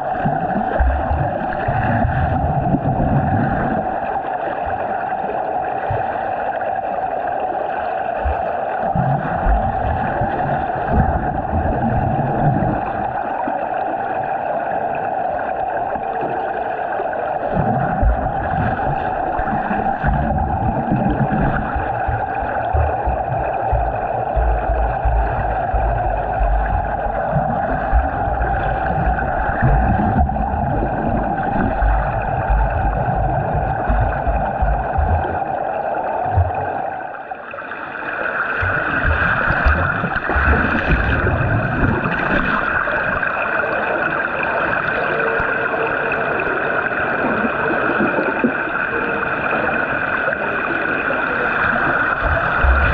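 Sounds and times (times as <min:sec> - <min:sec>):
churning water: 0:00.0 - 0:52.9
swimming stroke thumps: 0:00.2 - 0:03.1, 0:08.2 - 0:11.8, 0:17.5 - 0:36.5, 0:38.5 - 0:43.1, 0:52.0 - 0:52.9.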